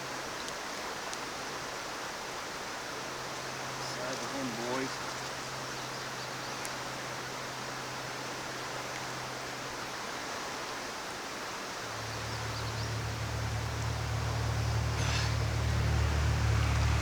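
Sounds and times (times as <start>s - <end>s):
stream water rushing: 0.0s - 17.0s
low steady hum: 11.8s - 17.0s.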